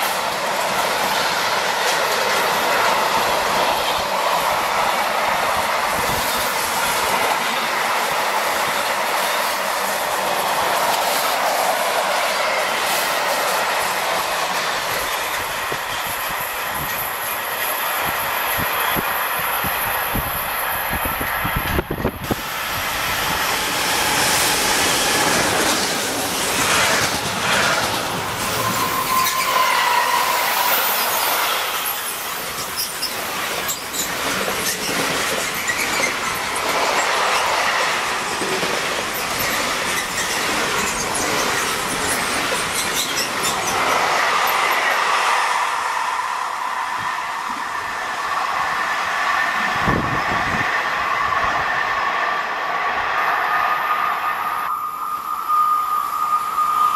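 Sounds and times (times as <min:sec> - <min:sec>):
wheels squealing on curved track: 0:21.2 - 0:38.0, 0:39.0 - 0:48.0, 0:53.2 - 0:56.9.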